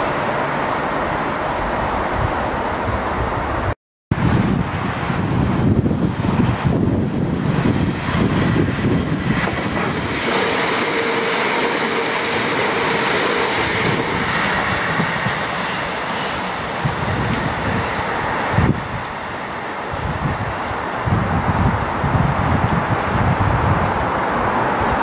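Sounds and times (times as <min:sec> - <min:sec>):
train passing at speed: 0:00.0 - 0:25.0
wind rumble on microphone: 0:01.6 - 0:10.4, 0:16.5 - 0:19.2, 0:19.9 - 0:25.0.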